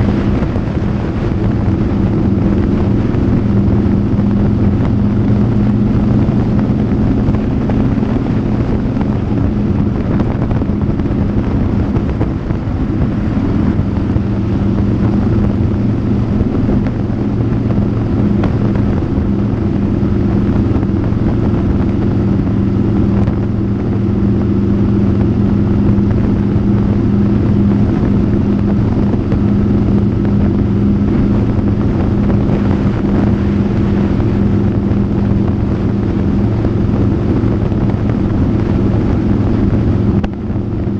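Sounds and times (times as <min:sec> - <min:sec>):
motorcycle engine cruising: 0:00.0 - 0:40.9
wind noise on microphone: 0:00.0 - 0:40.9.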